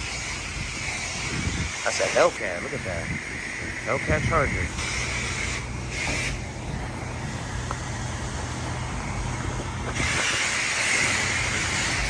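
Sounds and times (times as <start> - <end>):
pressure wand spraying: 0.0 - 12.0
car engine idling: 1.8 - 12.0.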